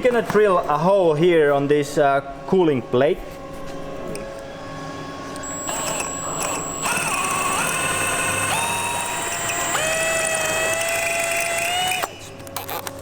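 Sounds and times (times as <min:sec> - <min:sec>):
power drill boring into metal: 0:05.4 - 0:12.1.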